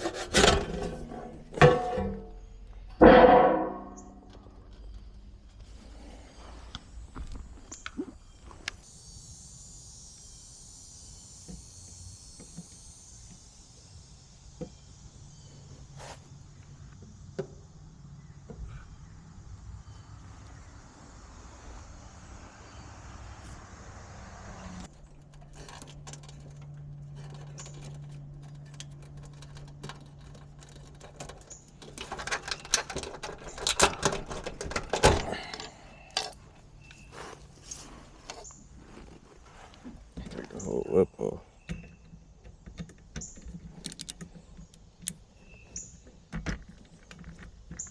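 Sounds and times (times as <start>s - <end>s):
high-pitched insect chorus: 8.2s - 18.2s.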